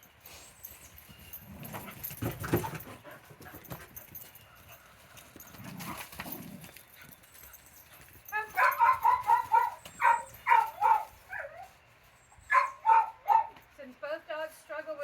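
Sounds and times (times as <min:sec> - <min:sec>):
dogs footfalls and scuffling: 0:00.0 - 0:15.0.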